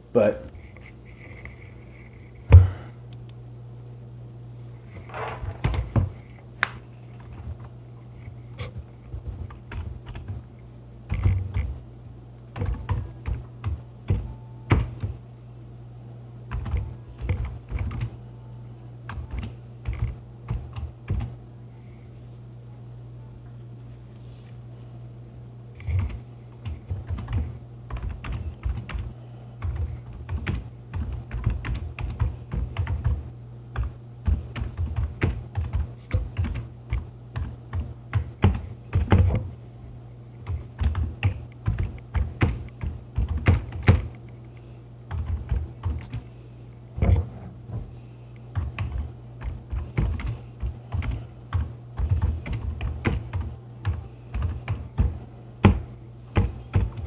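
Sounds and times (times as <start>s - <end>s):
steady low hum: 0.0s - 57.0s
computer keyboard typing: 9.4s - 10.4s, 11.1s - 11.8s, 12.6s - 15.2s, 16.5s - 18.2s, 19.1s - 21.3s, 25.8s - 33.2s, 33.8s - 39.4s, 40.4s - 44.2s, 45.1s - 46.2s, 48.5s - 57.0s.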